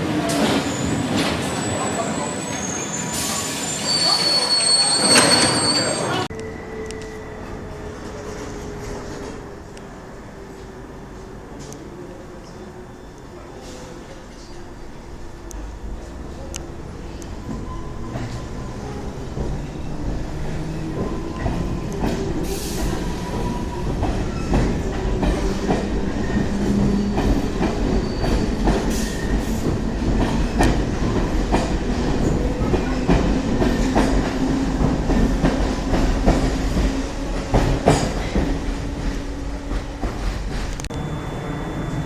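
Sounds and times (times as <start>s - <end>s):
train rumble and hum: 5.2s - 42.0s.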